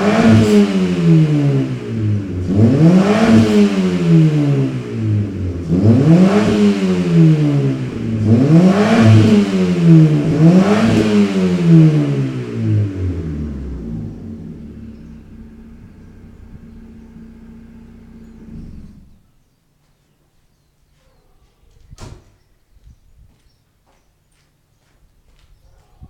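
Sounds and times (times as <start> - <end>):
car engine revving: 0.0 - 19.2.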